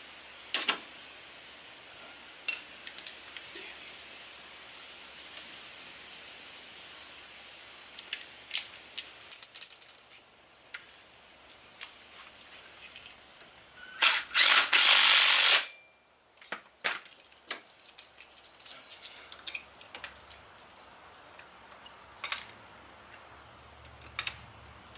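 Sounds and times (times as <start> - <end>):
tools and metal parts clinking: 9.3 - 10.1
loud rasping burst: 14.0 - 15.7.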